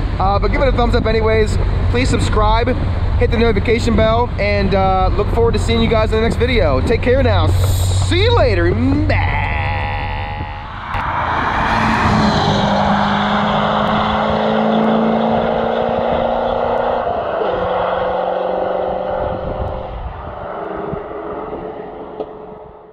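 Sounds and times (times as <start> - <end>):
car engine driving past: 10.2 - 22.8.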